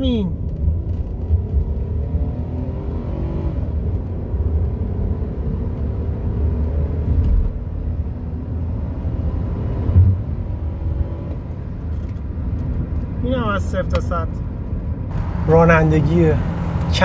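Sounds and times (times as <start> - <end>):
road rumble: 0.0 - 17.0
car engine accelerating: 15.1 - 17.0.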